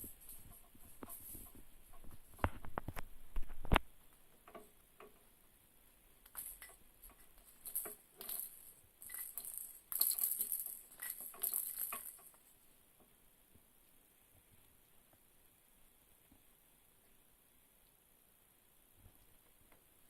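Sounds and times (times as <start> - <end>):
parrot rattling baby toy: 6.2 - 12.5.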